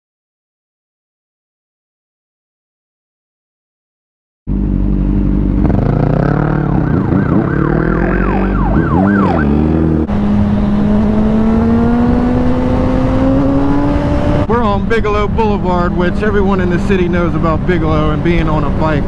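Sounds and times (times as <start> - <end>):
motorcycle engine running: 4.5 - 19.0
emergency siren yelping: 6.2 - 10.1.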